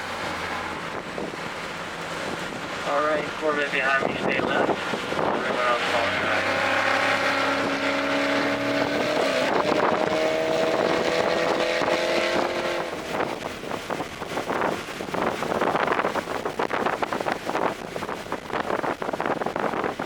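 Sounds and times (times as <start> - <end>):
car engine accelerating: 0.0 - 14.7
wind noise: 0.0 - 20.0.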